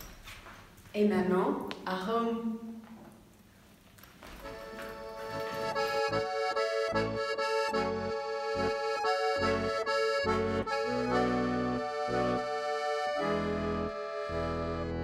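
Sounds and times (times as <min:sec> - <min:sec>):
accordion music: 0:04.4 - 0:15.0.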